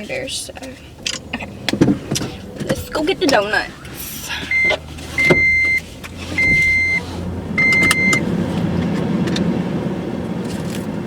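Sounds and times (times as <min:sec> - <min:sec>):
car engine and road noise: 0:00.0 - 0:11.0
car cabin beeps: 0:01.2 - 0:08.3.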